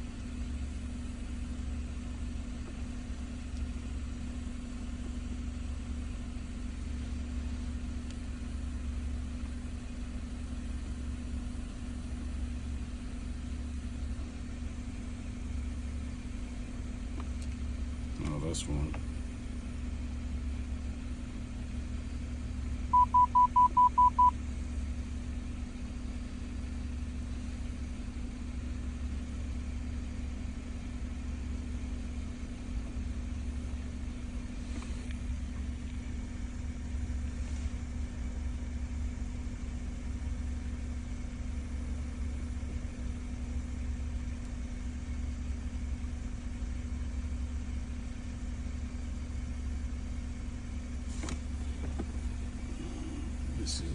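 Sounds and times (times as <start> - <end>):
vehicle engine idling: 0.0 - 53.9
short electronic beeps: 22.9 - 24.4.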